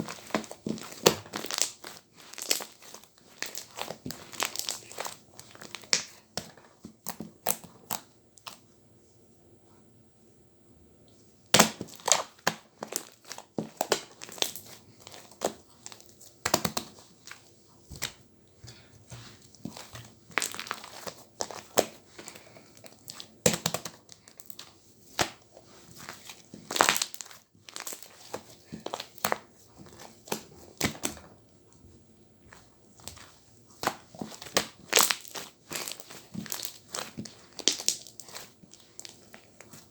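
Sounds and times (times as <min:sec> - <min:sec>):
slime squishing and popping: 0:00.0 - 0:08.6, 0:11.5 - 0:17.0, 0:19.5 - 0:25.4, 0:26.0 - 0:31.2, 0:33.8 - 0:39.9.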